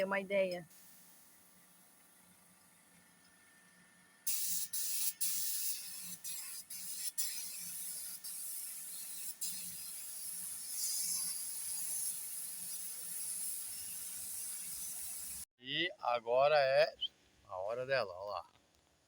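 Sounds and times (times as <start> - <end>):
paint spray gun hissing: 4.3 - 15.5.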